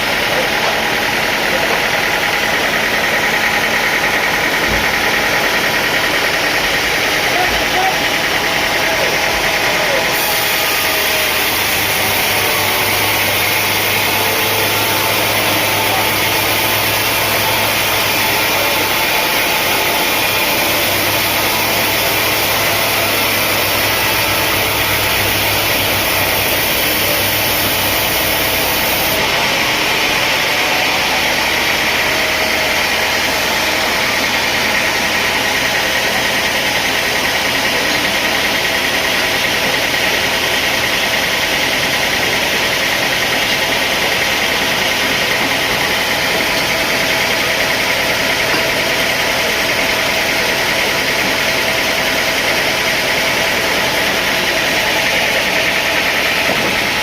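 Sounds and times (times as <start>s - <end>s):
sawmill engine hum: 0.0s - 57.0s
mechanical hiss: 20.1s - 29.2s.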